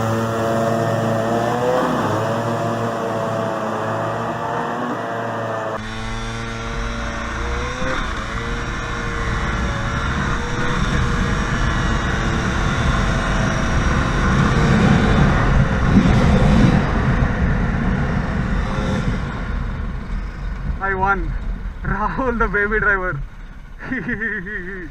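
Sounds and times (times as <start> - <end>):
motorcycles accelerating hard: 0.0 - 20.8
wind noise on microphone: 5.8 - 22.0.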